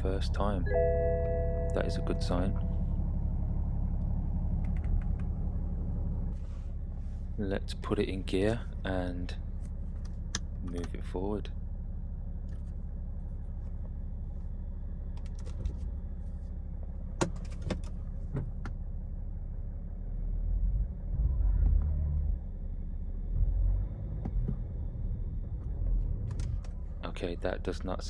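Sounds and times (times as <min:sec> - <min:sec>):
diesel car engine idling: 0:00.0 - 0:21.3, 0:24.7 - 0:28.0
clicks: 0:04.0 - 0:05.4.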